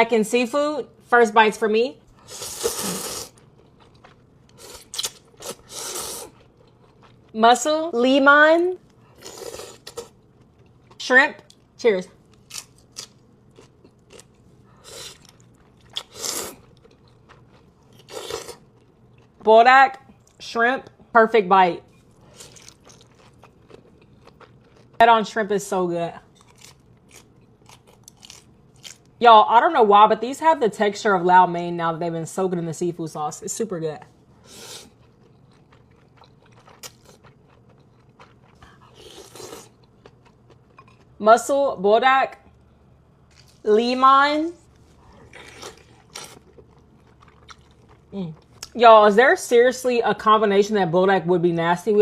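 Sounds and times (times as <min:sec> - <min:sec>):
chewing and biting: 0:03.2 - 0:07.4, 0:12.3 - 0:14.4, 0:15.0 - 0:19.4, 0:22.2 - 0:25.0, 0:26.4 - 0:29.1, 0:34.8 - 0:41.2, 0:44.8 - 0:48.7.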